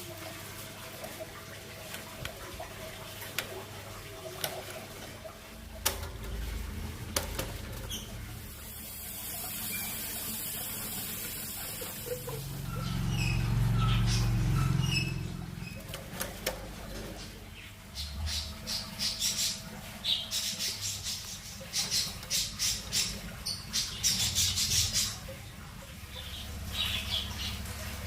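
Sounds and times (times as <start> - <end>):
hissing pour: 0.0 - 15.9
cage cups clicking and knocking: 1.8 - 8.4.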